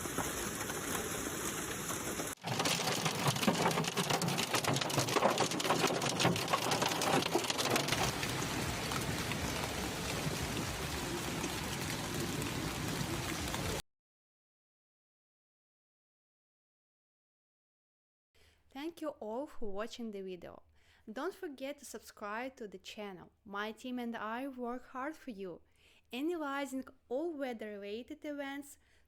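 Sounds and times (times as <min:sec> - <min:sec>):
hail clattering on hard surfaces: 0:00.0 - 0:11.0
rain hiss: 0:00.0 - 0:13.8.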